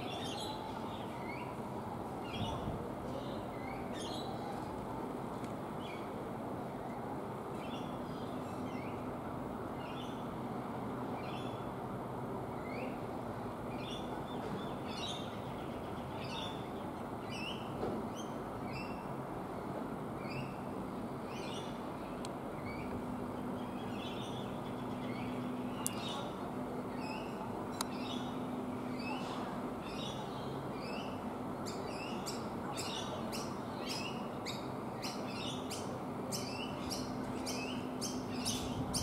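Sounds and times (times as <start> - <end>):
bird chirping: 27.0 - 39.0.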